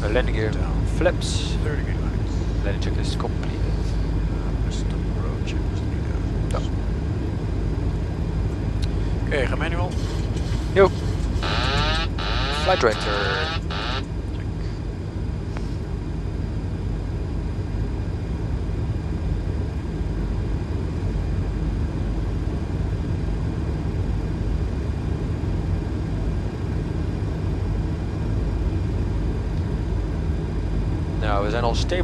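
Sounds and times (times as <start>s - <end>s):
steady hum: 0.0s - 14.7s.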